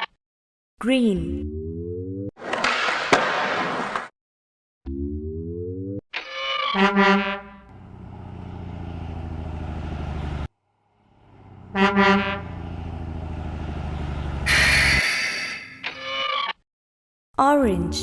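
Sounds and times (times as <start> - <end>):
truck engine rumbling: 7.6 - 15.6
horn toot: 11.6 - 12.6, 14.5 - 15.3
loud air hiss: 14.5 - 15.6.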